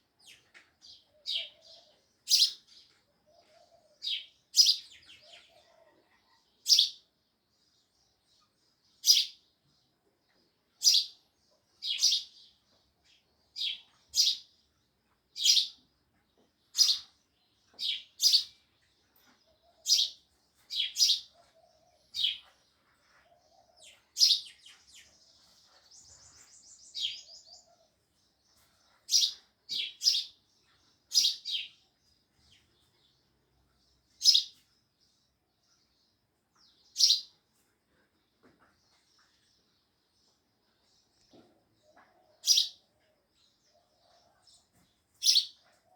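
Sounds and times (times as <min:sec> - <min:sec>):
sparrows chirping: 0:00.0 - 0:45.9.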